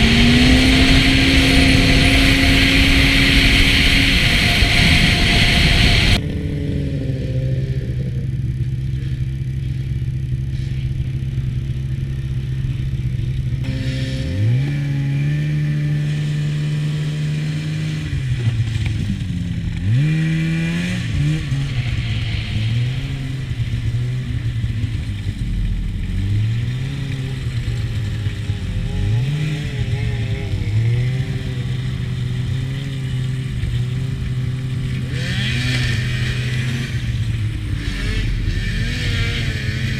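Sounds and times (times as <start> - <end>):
loud rush of noise: 0.0 - 8.7
snowmobile engine running: 0.0 - 39.9.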